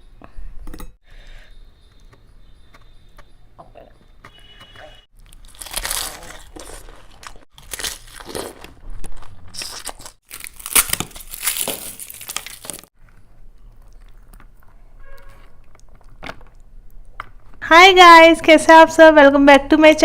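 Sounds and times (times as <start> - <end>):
crunching fried food: 5.1 - 17.5
soft chewing: 13.0 - 17.5.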